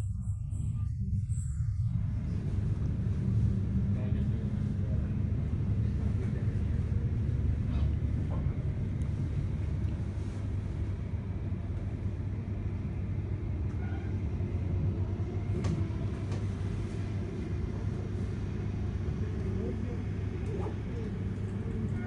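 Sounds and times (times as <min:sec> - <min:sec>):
train wheels rumbling on rail: 0:13.6 - 0:22.0.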